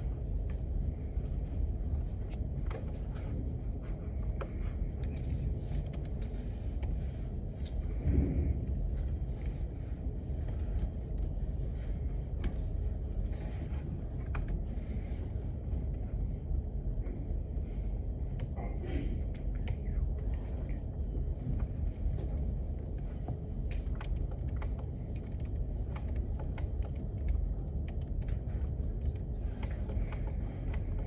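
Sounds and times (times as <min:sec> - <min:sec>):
ventilation rumble: 0:00.0 - 0:31.0
keyboard typing clicks: 0:04.2 - 0:06.2, 0:22.7 - 0:31.0.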